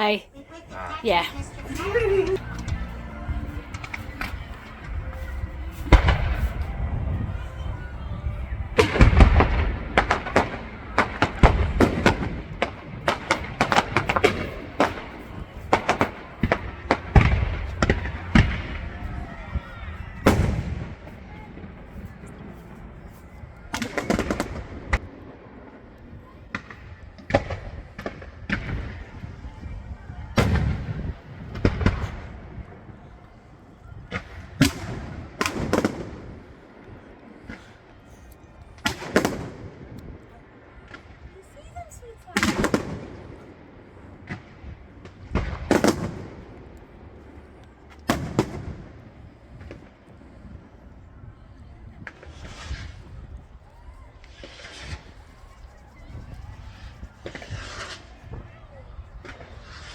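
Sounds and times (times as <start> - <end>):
fireworks banging: 0.0 - 19.5
fireworks bangs and crackling: 0.0 - 32.9, 34.0 - 38.0, 38.7 - 47.3, 48.0 - 50.8, 56.5 - 59.9.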